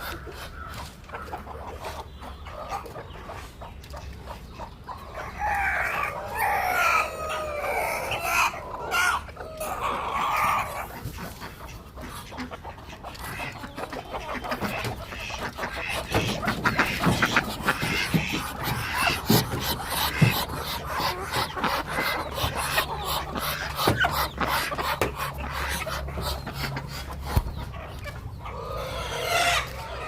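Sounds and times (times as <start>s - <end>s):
chickens clucking: 0.0s - 30.0s
roosters crowing: 5.1s - 11.0s, 27.7s - 30.0s.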